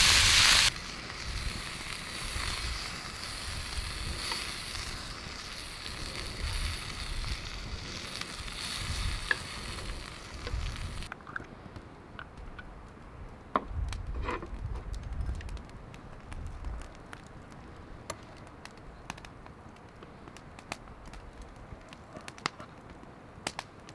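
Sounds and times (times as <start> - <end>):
steak sizzling: 0.0 - 11.1
sharp crackles and ticks: 0.0 - 23.9.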